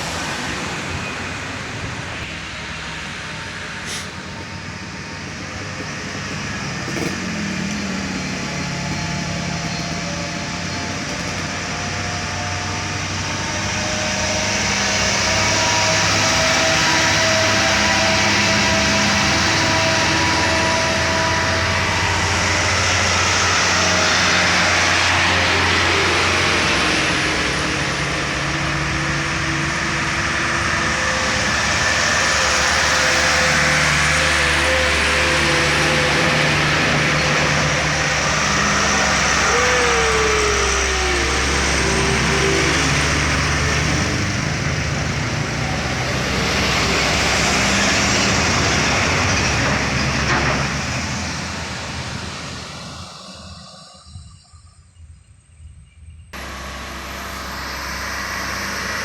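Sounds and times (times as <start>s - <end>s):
truck engines labouring uphill: 0.0s - 59.0s.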